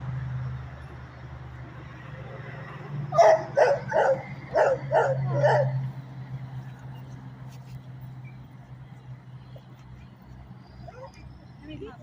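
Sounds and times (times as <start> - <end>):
dog barking: 3.2 - 5.8.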